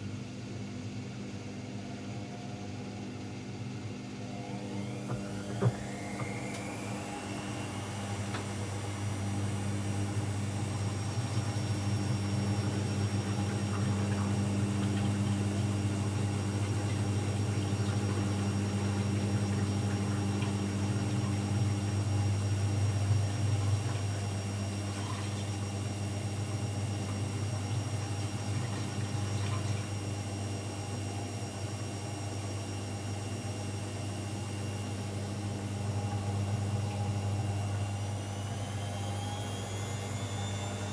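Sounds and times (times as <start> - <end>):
washing machine motor whine: 0.0 - 40.9
constant low hum: 4.8 - 30.1.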